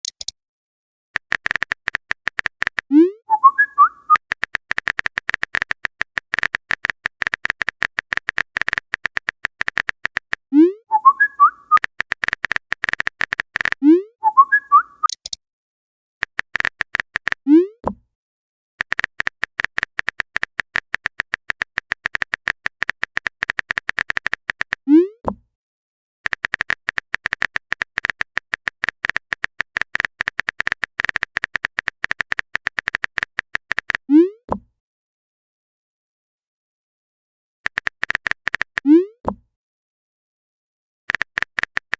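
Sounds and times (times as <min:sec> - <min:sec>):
rapid typing clicks: 0:01.2 - 0:02.9, 0:04.1 - 0:10.4, 0:11.7 - 0:13.8, 0:16.2 - 0:17.4, 0:18.8 - 0:24.8, 0:26.2 - 0:34.0, 0:37.7 - 0:38.8, 0:41.1 - 0:41.9
chirpy warble: 0:03.0 - 0:04.2, 0:10.6 - 0:11.8, 0:14.1 - 0:15.2.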